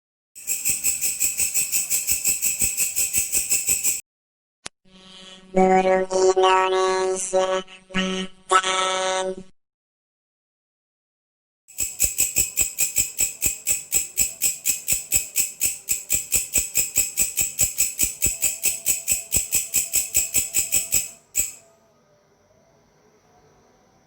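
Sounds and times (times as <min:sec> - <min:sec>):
grasshopper chirping: 0:00.4 - 0:04.0, 0:11.8 - 0:21.6.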